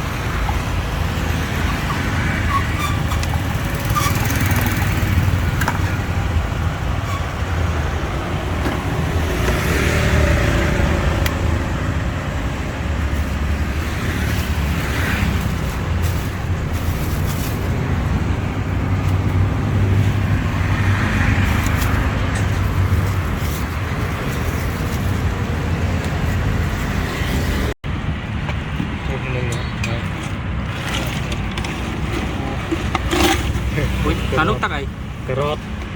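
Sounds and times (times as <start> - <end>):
passing vehicles rumbling: 0.0 - 35.9.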